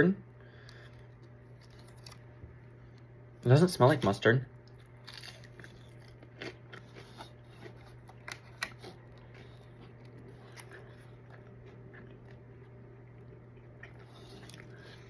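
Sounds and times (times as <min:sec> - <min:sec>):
soft chewing: 0:00.6 - 0:03.1, 0:04.6 - 0:15.0
crisp food crunching: 0:00.8 - 0:02.3, 0:04.6 - 0:15.0.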